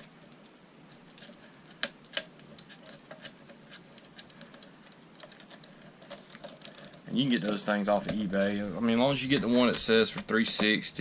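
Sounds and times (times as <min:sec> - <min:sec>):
small clicks and ticks: 0:00.0 - 0:08.6.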